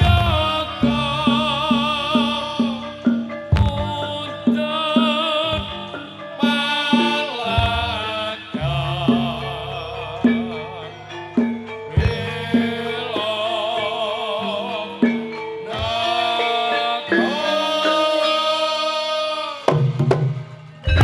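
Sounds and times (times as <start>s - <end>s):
thumps: 0.0s - 4.6s
hand drum strokes: 0.0s - 9.6s
folk music with wavering melody: 0.0s - 19.7s, 20.4s - 21.0s.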